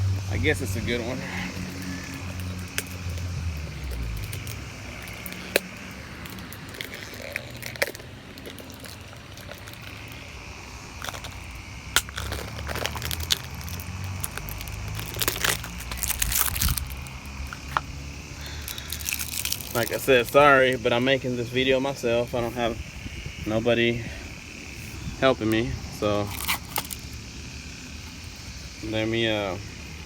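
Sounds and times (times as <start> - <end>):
lawn mower engine hum: 0.0 - 30.0
oil filter packaging crinkling: 1.6 - 21.0, 26.1 - 27.1.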